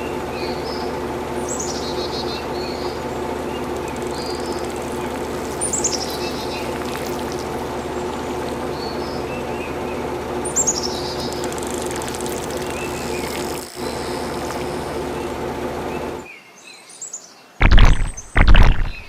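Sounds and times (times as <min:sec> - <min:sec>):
mechanical hum: 0:00.0 - 0:16.8, 0:17.6 - 0:19.0
birds chirping: 0:00.0 - 0:19.0
loud thumps: 0:17.6 - 0:19.0.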